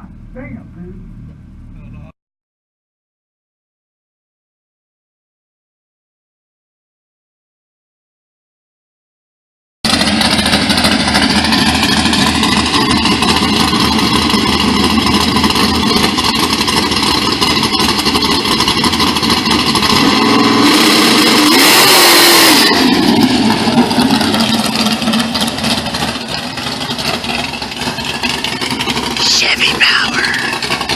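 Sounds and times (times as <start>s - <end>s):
drag car engine running: 9.9s - 30.9s.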